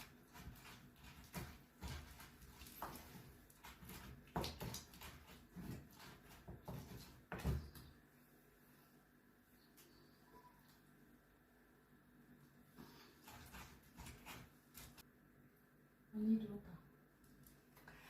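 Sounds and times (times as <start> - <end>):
spices ground by hand: 0.0 - 8.0, 13.0 - 15.0.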